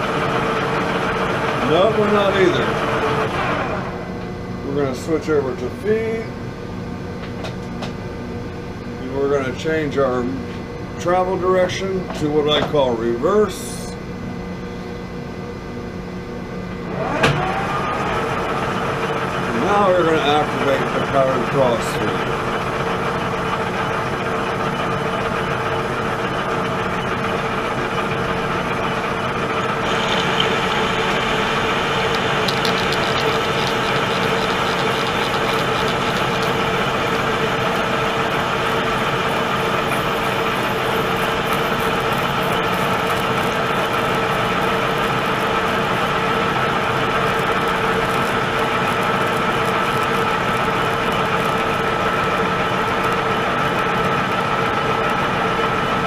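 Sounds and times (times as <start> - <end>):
metal lathe humming: 25.0 - 56.0.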